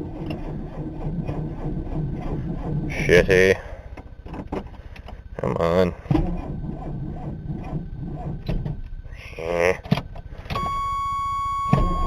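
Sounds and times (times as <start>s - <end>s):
high-pitched electronic tone: 10.6s - 12.0s.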